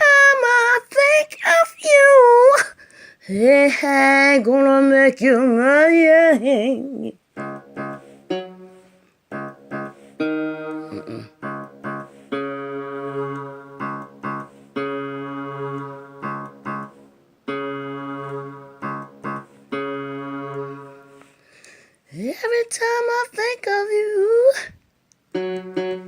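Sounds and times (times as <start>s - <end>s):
guitar playing chords: 7.4s - 16.8s.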